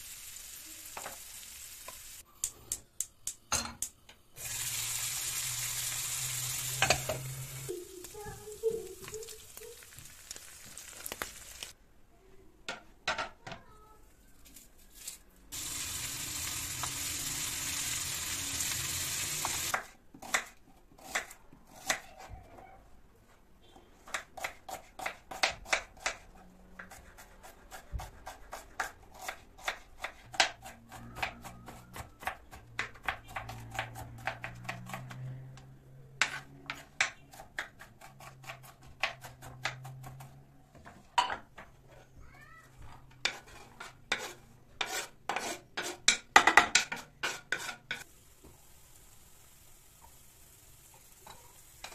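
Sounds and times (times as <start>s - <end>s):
steady hiss: 48.1s - 51.9s.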